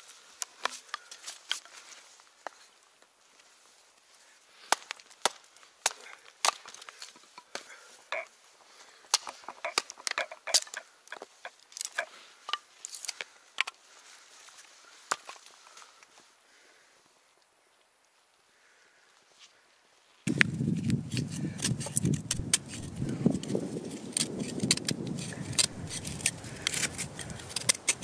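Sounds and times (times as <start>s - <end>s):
dry wood snapping: 4.6s - 8.2s, 9.1s - 13.8s, 20.3s - 28.0s.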